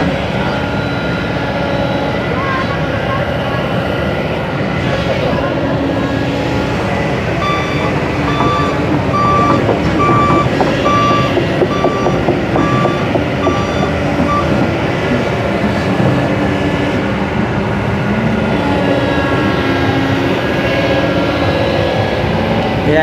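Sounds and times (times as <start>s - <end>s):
engines running: 0.0s - 23.0s
reversing alarm beeping: 0.1s - 2.4s, 6.1s - 17.4s.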